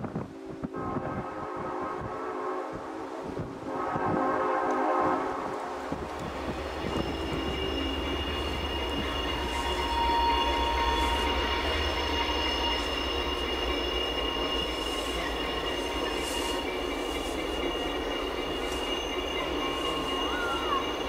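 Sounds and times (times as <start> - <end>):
locomotive engine rumble: 3.4 - 21.0
high-pitched squeal: 5.9 - 21.0.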